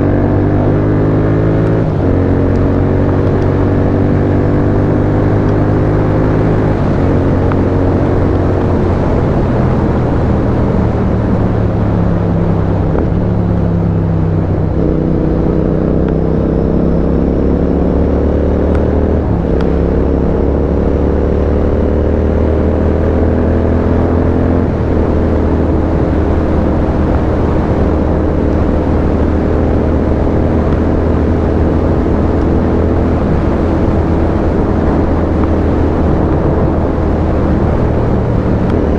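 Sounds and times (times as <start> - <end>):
motorcycle engine shifting gears: 0.0 - 38.9
wind and road noise: 0.0 - 38.9.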